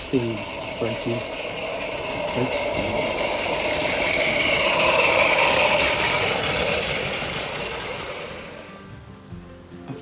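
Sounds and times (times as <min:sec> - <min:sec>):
small steam locomotive running: 0:00.0 - 0:10.0.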